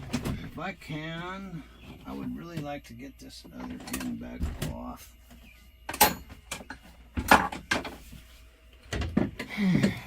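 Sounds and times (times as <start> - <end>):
knocks and clunks of parts handled: 5.9 - 8.0.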